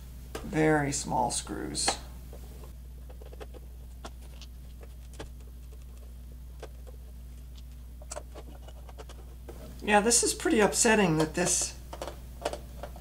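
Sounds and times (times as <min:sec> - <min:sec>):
steady low hum: 0:00.0 - 0:13.0
drive casing being handled: 0:02.6 - 0:09.8.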